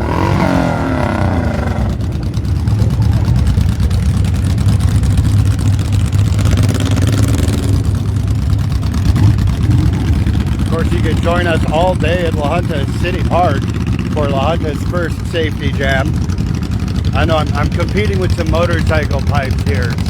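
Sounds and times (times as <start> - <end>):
motorcycle engines rumbling: 0.0 - 20.0.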